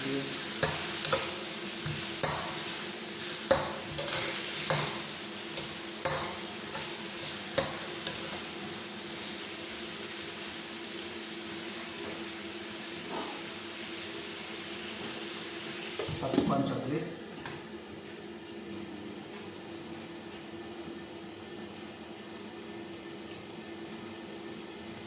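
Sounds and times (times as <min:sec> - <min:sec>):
food sizzling in a pan: 0:00.0 - 0:18.7
utensil clinking against pan: 0:03.5 - 0:05.0.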